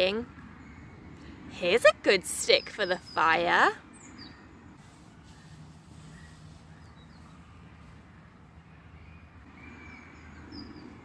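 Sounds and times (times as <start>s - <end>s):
low outdoor rumble: 0.0s - 11.0s
faint bird chirps: 5.2s - 11.0s.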